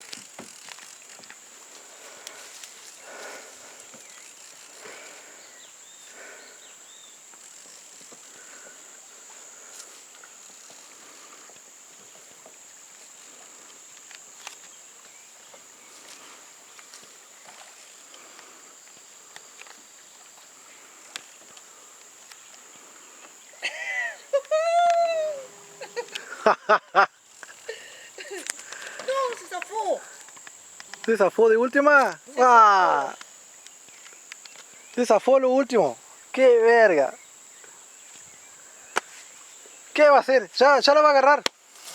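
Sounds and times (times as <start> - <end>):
faint chirps: 2.3 - 11.5.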